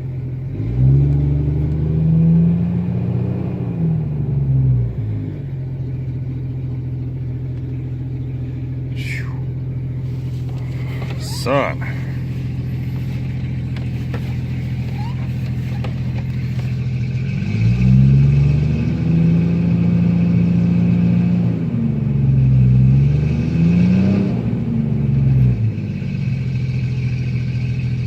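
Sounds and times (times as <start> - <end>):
loud engine idling and revving: 0.0 - 28.0.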